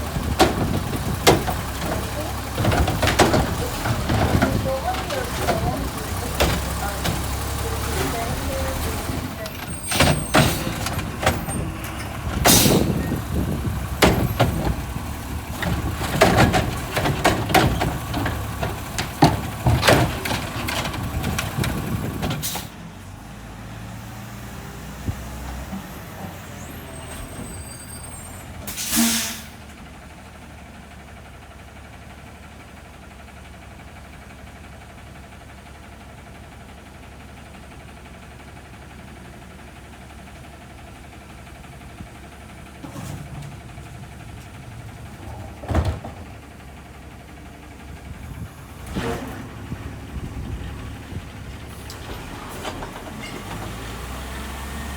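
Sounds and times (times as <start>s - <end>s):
garbage truck clattering and banging: 0.0s - 54.9s
truck engine running low: 0.0s - 54.9s
air brakes hissing: 9.7s - 14.4s, 22.4s - 22.8s, 26.4s - 29.7s.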